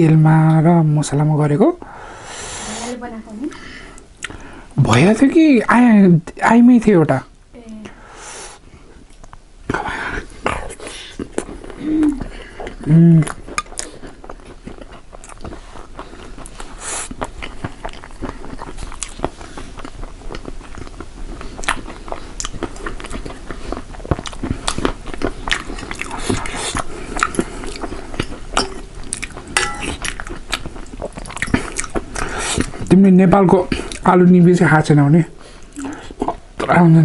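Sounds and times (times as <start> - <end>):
people chewing food: 0.0 - 5.3, 7.6 - 37.0.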